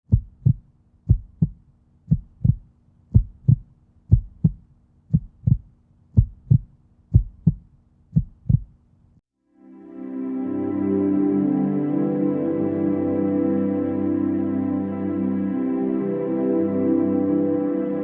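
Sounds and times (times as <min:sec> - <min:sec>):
heartbeat thumps: 0:00.0 - 0:08.8.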